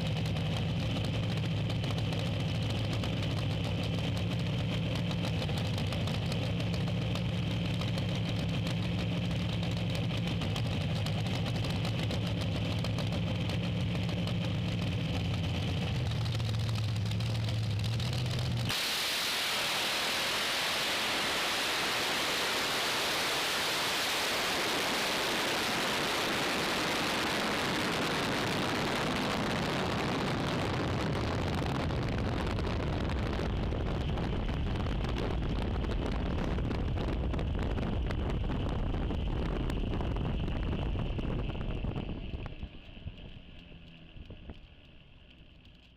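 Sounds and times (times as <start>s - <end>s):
racing car engine roaring: 0.0s - 45.7s.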